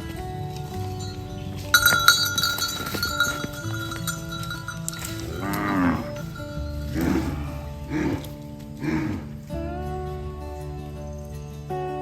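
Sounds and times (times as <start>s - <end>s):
cowbell clanking: 0.0s - 9.5s
cow mooing: 1.8s - 9.5s.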